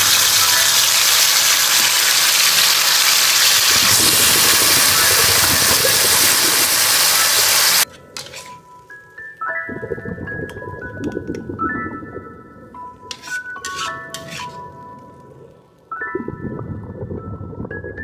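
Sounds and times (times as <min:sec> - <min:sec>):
vegetables sizzling in a wok: 0:00.0 - 0:08.6
soft music: 0:07.8 - 0:18.0.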